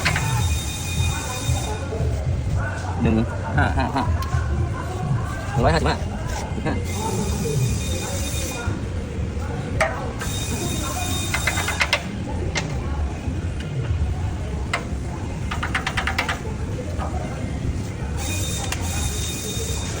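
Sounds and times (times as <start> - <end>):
steady low rumble: 1.0 - 7.0
rapid clicking: 14.6 - 17.2.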